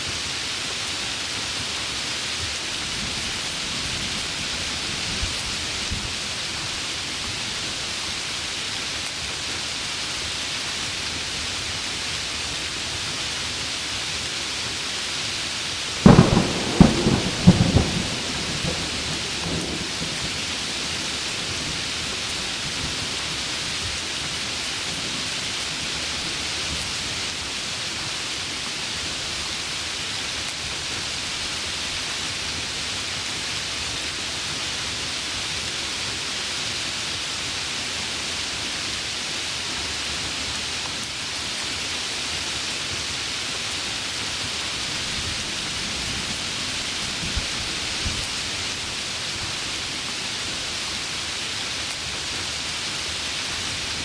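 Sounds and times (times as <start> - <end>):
heavy rain falling: 0.0 - 54.0
thunderclap: 16.0 - 21.3.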